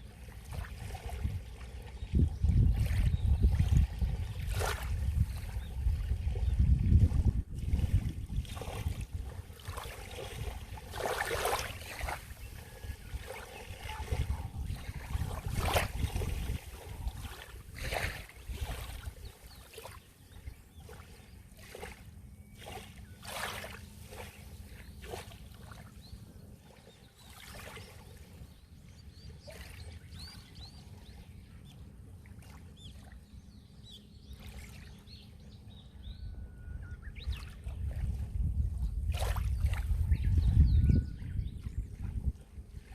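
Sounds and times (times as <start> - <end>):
low rumble of surf: 0.0 - 42.9
sea waves splashing on shore: 7.6 - 20.1, 20.8 - 26.0.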